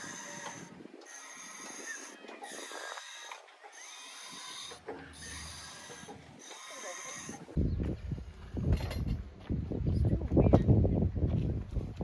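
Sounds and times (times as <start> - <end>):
low rumbling on microphone: 7.4 - 12.0.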